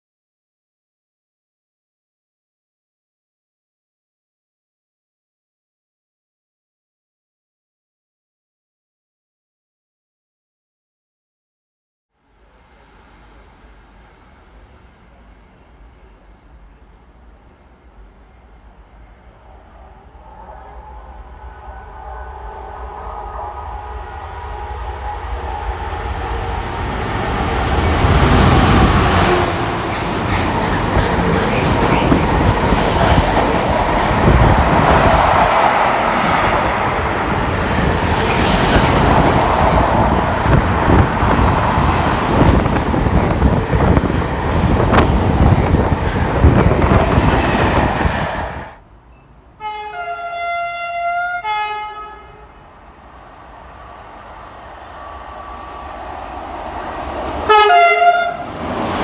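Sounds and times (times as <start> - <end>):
freight train passing: 12.2 - 59.0
train horn: 20.2 - 29.9, 49.6 - 52.7, 57.4 - 58.6.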